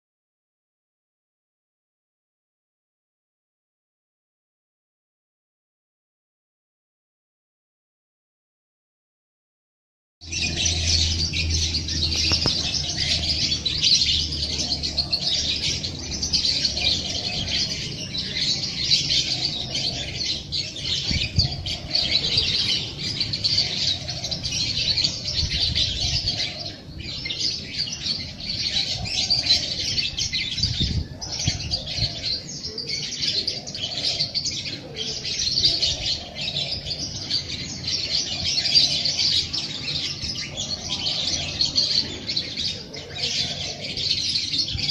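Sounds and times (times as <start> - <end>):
lower bird calls: 10.2 - 44.9
songbirds chirping: 10.2 - 44.9.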